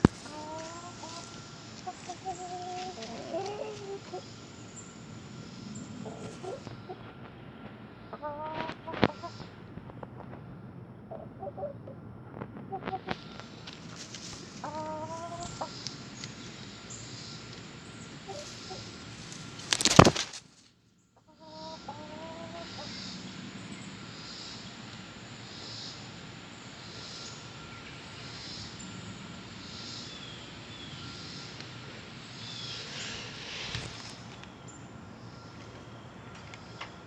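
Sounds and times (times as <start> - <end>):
chickens clucking: 0.0 - 4.6, 5.4 - 10.4, 11.1 - 16.7, 17.5 - 20.2, 21.2 - 23.2.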